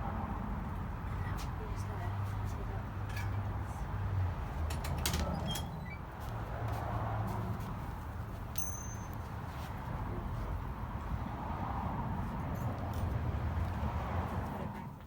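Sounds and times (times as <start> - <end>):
metal bike parts clinking: 8.5 - 9.3.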